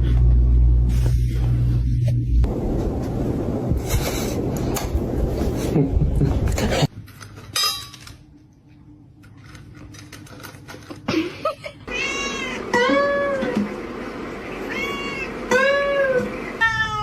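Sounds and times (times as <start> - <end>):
cat meowing: 11.9 - 13.5, 14.6 - 17.0.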